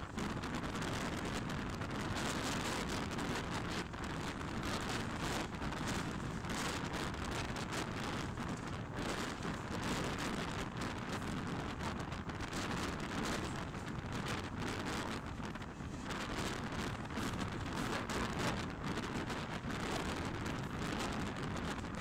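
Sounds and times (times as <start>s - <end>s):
train wheels on rails rushing: 0.0s - 22.0s.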